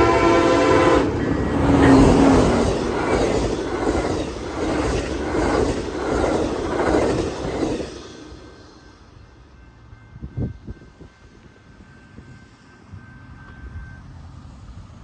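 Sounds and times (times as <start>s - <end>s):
train wheels clacking over rail joints: 1.2s - 8.4s.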